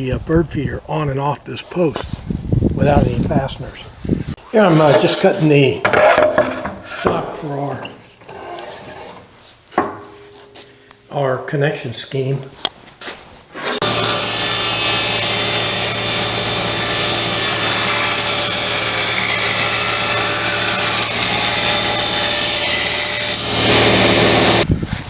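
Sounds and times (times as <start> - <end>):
power saw cutting wood: 13.6 - 24.6.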